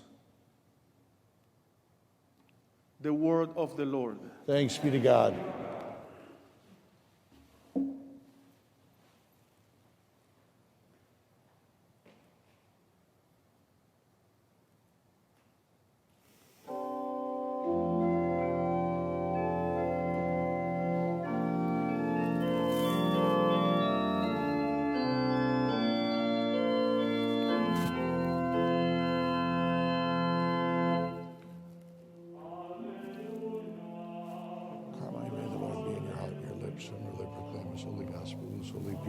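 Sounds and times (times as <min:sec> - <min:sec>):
church organ chords: 0:16.7 - 0:39.0
person singing: 0:32.3 - 0:39.0.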